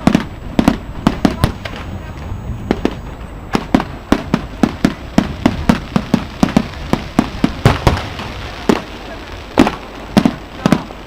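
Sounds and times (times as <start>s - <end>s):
fireworks exploding bangs: 0.0s - 11.0s.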